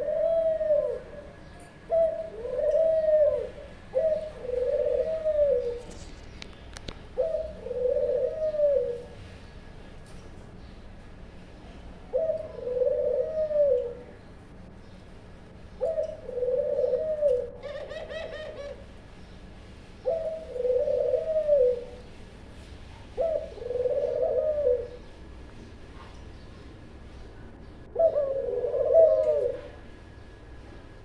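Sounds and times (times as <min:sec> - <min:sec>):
doves cooing: 0:00.0 - 0:09.3, 0:12.1 - 0:14.3, 0:15.8 - 0:19.1, 0:20.0 - 0:22.3, 0:23.0 - 0:25.3, 0:27.8 - 0:30.4.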